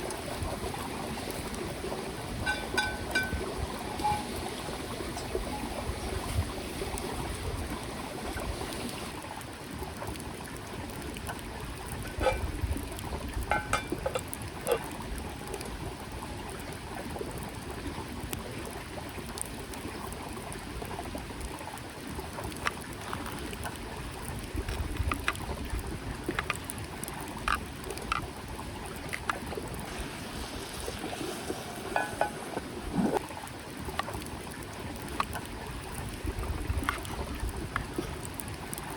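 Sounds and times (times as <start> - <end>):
creek flowing: 0.0 - 38.9
light clicks and taps: 26.2 - 28.3.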